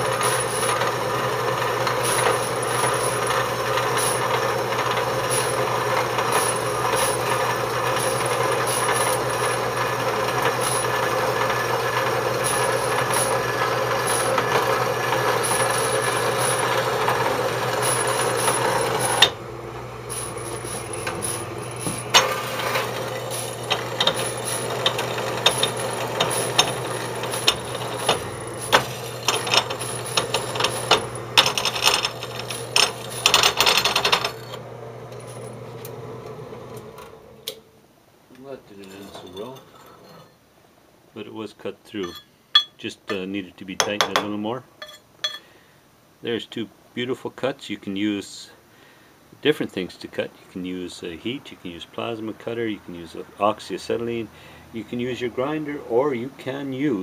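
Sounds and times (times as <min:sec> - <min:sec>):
bandsaw cutting steel: 0:00.0 - 0:35.9
bandsaw motor hum: 0:00.0 - 0:37.6.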